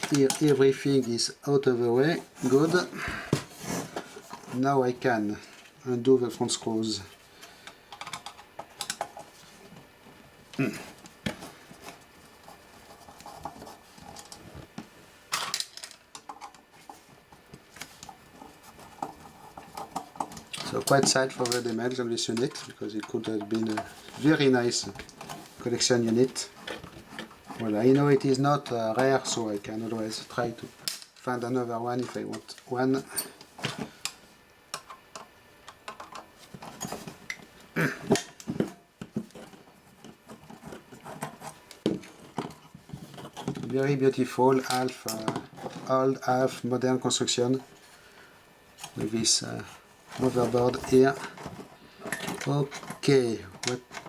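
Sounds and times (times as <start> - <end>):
metal parts being handled: 15.3 - 31.2, 50.1 - 54.0.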